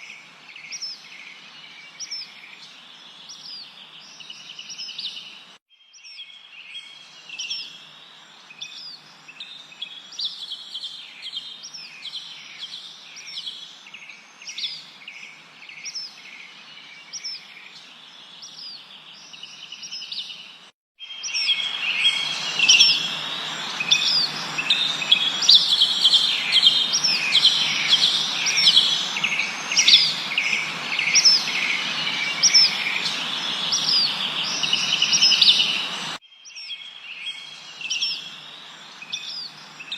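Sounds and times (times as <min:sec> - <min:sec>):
birds chirping: 0:07.0 - 0:39.9
steady hiss: 0:21.6 - 0:36.2.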